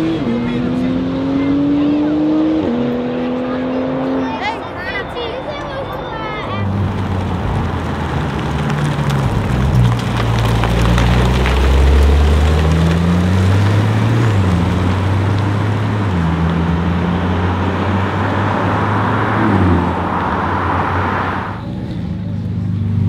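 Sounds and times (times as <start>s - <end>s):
sports car accelerating: 0.0s - 23.0s
rush of noise: 17.6s - 21.8s.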